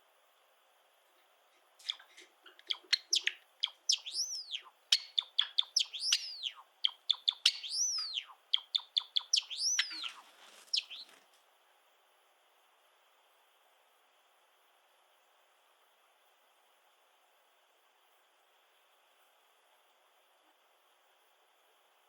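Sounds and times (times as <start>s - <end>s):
sparrow singing: 1.8s - 11.1s.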